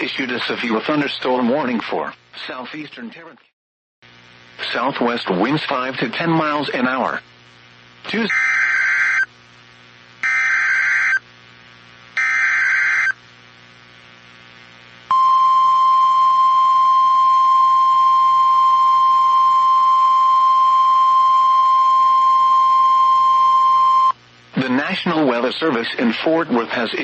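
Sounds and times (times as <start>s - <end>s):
steady warning alarm tone: 8.3s - 9.3s, 10.2s - 11.2s, 12.2s - 13.2s.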